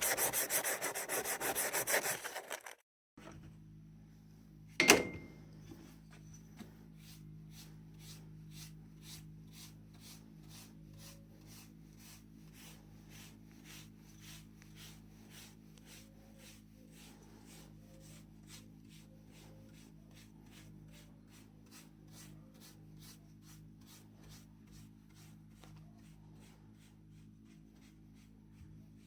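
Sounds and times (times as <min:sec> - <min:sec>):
sharp ringing knock: 0:04.8 - 0:05.4.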